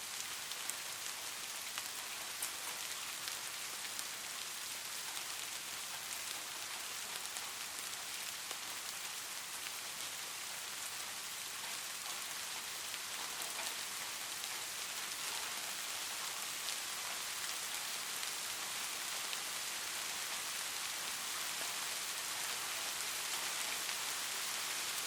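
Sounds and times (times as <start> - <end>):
light rain hiss: 0.0 - 25.0.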